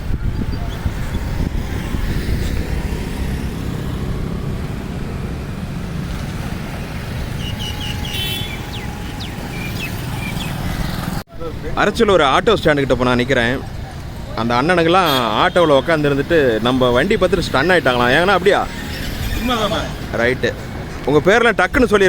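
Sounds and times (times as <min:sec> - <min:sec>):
wind on microphone: 0:00.0 - 0:11.2
scooter engine rumbling: 0:00.0 - 0:11.8, 0:12.7 - 0:21.3.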